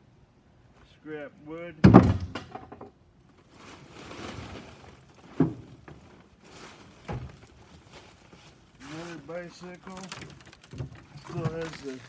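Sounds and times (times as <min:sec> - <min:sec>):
scrap scraping in truck bed: 0:03.5 - 0:12.0.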